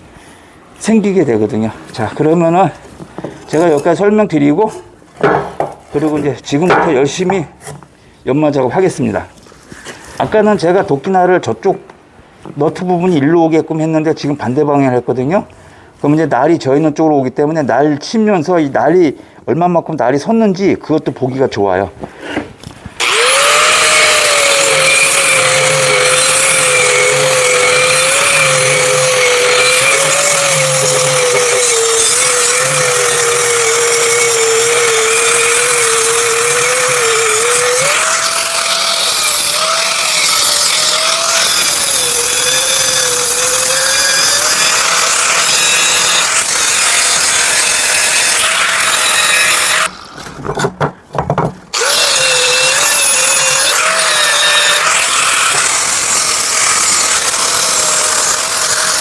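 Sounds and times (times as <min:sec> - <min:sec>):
power grinder grinding steel: 0:23.0 - 0:50.2, 0:51.7 - 0:59.0.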